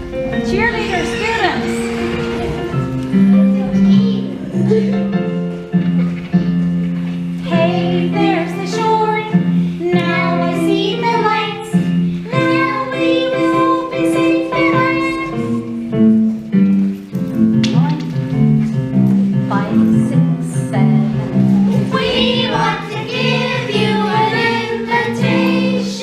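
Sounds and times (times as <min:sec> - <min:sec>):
recorded instrumental accompaniment: 0:00.0 - 0:26.0
children singing opera: 0:07.4 - 0:15.7, 0:21.7 - 0:26.0.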